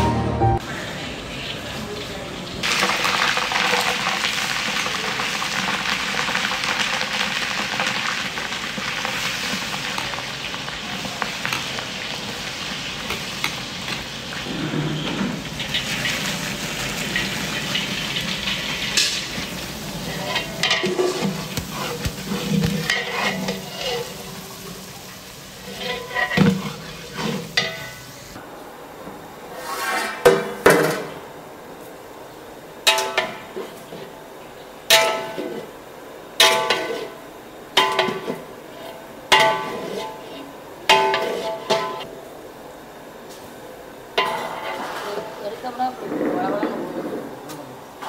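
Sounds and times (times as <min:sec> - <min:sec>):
food sizzling in hot oil: 0:01.4 - 0:28.4
metal spatula scraping a pot: 0:20.0 - 0:24.2, 0:25.6 - 0:28.0, 0:38.0 - 0:42.0.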